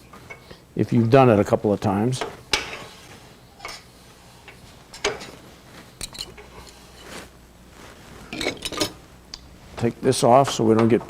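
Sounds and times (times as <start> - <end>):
metal tools clicking and clinking: 8.4 - 9.0.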